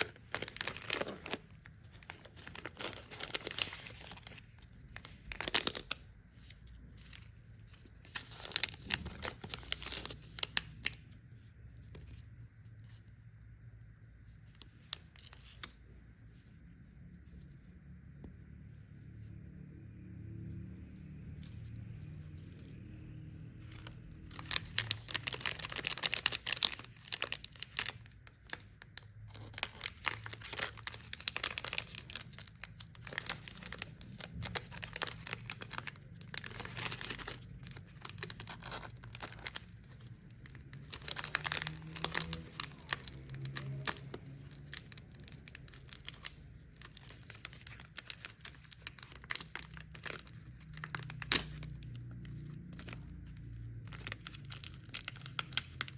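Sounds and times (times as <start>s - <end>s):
plastic wrappers crinkling: 0.0s - 11.0s, 23.6s - 55.9s.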